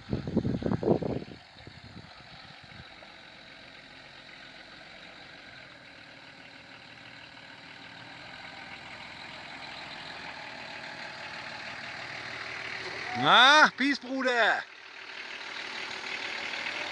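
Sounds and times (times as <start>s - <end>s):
vehicle engine idling: 0.0s - 16.9s.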